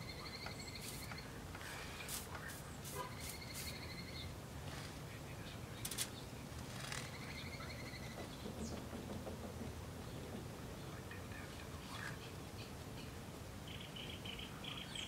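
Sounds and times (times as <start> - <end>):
low background noise: 0.0 - 15.0
sharp clicks: 5.8 - 7.1.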